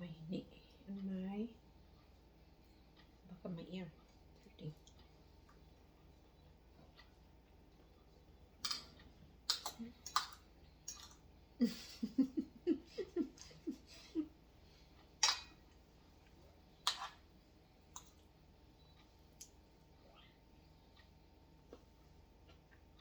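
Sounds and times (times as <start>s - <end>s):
person giggling: 11.6s - 14.4s.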